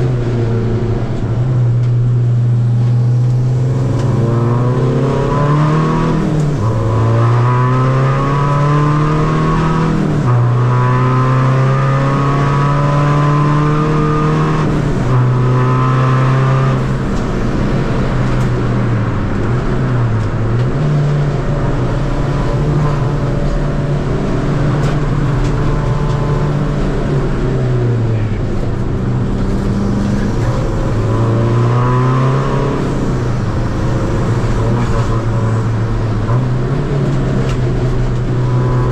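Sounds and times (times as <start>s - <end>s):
diesel engine revving: 0.0s - 38.9s.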